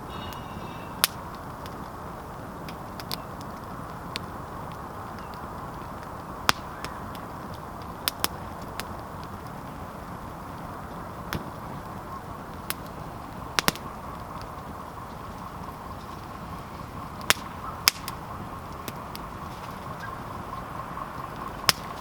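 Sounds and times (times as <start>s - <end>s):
campfire crackling: 0.0s - 22.0s
steady low hiss: 0.0s - 22.0s.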